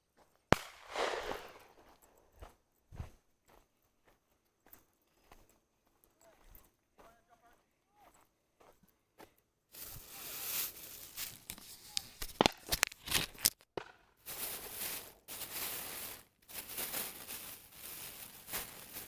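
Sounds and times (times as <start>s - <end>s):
rustling and crackling: 0.5s - 3.1s, 9.7s - 19.0s.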